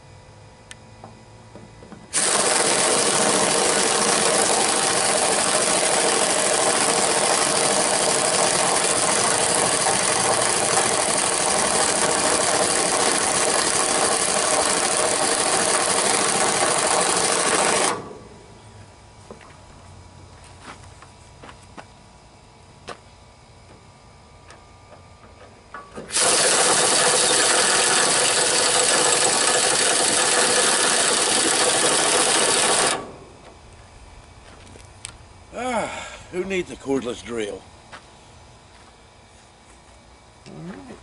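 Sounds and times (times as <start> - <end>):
power tool running: 1.5 - 18.6, 25.7 - 33.6.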